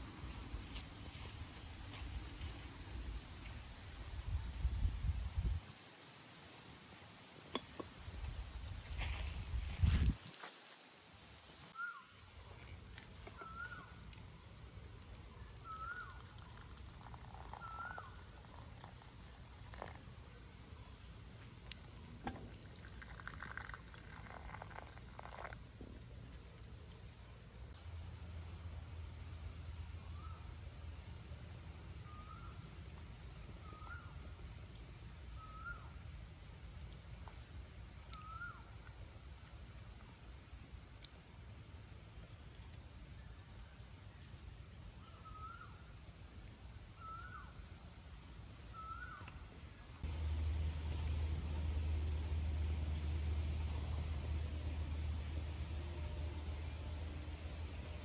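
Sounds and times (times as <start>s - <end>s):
faint background hiss: 0.0s - 58.0s
bird whistled call: 15.6s - 16.2s
faint low rumble: 50.0s - 58.0s.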